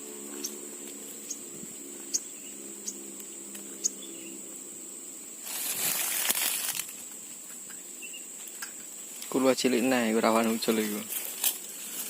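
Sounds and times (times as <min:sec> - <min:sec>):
high insect drone: 0:00.0 - 0:12.0
low steady hum: 0:00.0 - 0:12.0
sharp high bird chirps: 0:01.2 - 0:03.1, 0:03.7 - 0:04.4, 0:07.7 - 0:08.4
loud rustling: 0:05.4 - 0:07.2.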